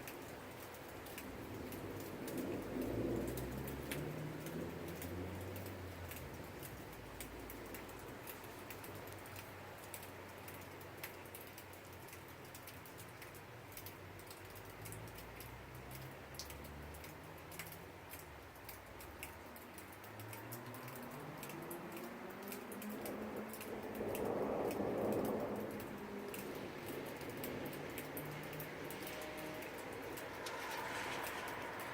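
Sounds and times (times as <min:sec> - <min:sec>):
rain drips and pattering: 0:00.0 - 0:31.9
low thunder rumble: 0:01.3 - 0:07.5, 0:22.9 - 0:31.9.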